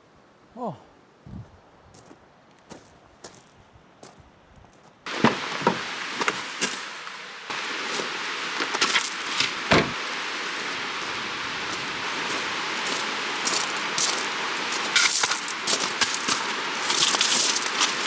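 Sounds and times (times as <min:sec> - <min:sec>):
wind: 0:00.0 - 0:18.0
flowing creek: 0:05.1 - 0:18.0.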